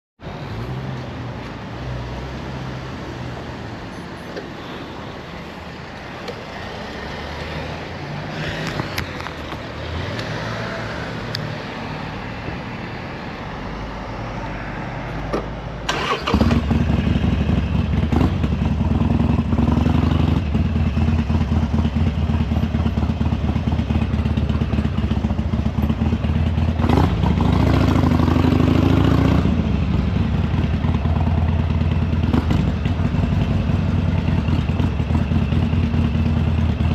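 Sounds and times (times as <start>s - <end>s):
motorcycle engine revving: 15.9s - 36.9s.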